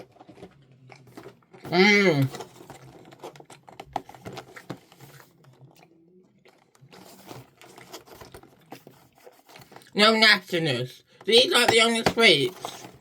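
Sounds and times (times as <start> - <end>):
person chewing gummy sweets: 0.0 - 10.0.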